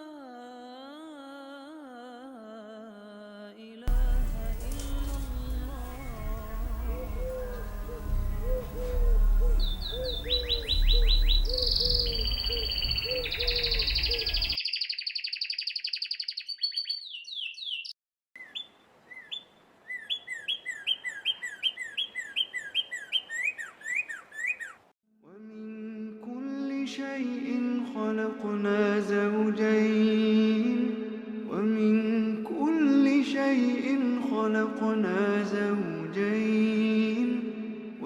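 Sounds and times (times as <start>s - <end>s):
repeated low note: 3.9s - 13.2s
low rumble: 3.9s - 14.5s
bird chirps and trills: 4.0s - 24.8s
bird downward-slurred whistles: 6.9s - 17.9s.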